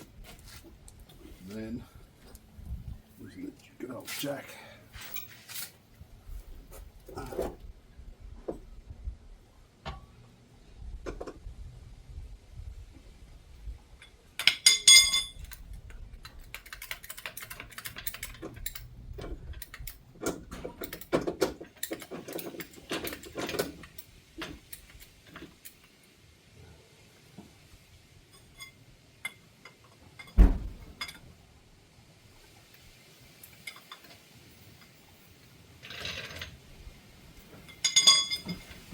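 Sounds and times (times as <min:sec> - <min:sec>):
metal tools clinking and rattling: 0:04.9 - 0:05.8, 0:14.0 - 0:25.9, 0:28.3 - 0:31.3, 0:33.3 - 0:36.6, 0:37.4 - 0:38.9
heavy thud: 0:30.4 - 0:30.9.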